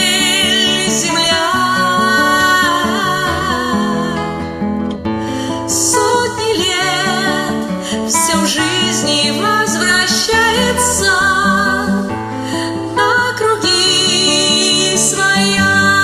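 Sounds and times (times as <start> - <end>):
acoustic guitar accompaniment: 0.0 - 16.0
person singing with vibrato: 0.0 - 16.0.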